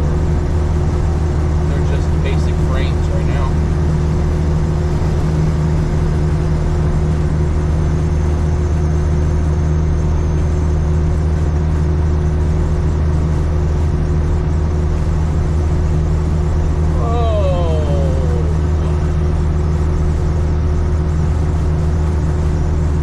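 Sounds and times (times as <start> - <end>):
road noise: 0.0 - 10.8
diesel engine drone: 0.0 - 23.0.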